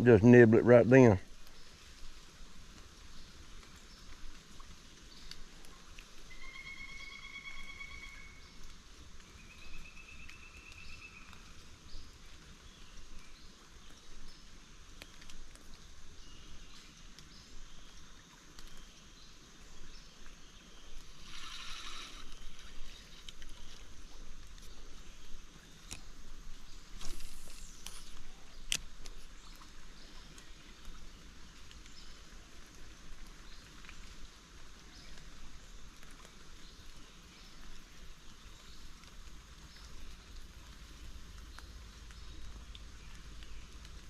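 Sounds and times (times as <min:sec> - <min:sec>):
steady creek hiss: 0:00.0 - 0:44.0
short rasping burst: 0:21.2 - 0:22.4.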